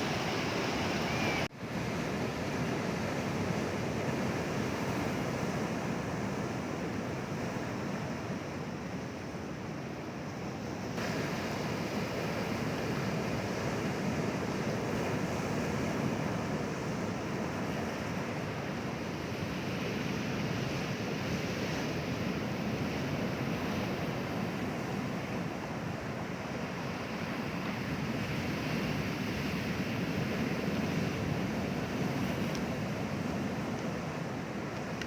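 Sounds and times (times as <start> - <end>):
sea waves washing onto shore: 0.0 - 6.0.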